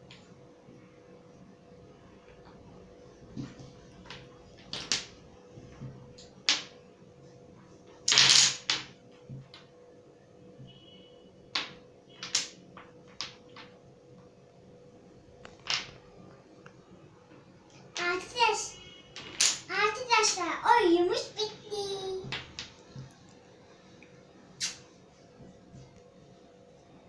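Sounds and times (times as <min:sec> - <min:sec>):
small objects clicking and knocking: 0:04.0 - 0:05.2, 0:08.1 - 0:09.7, 0:11.5 - 0:13.8, 0:19.1 - 0:19.7.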